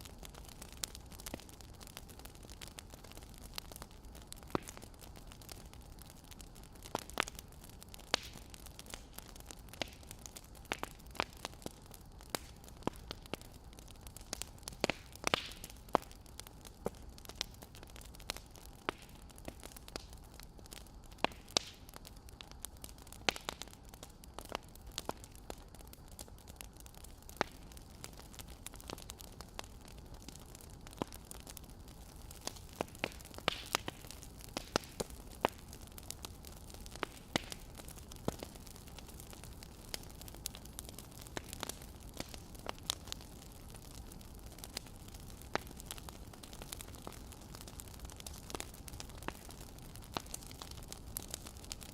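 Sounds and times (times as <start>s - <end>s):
fire low hiss: 0.0s - 51.9s
firewood crackling and popping: 0.0s - 51.9s.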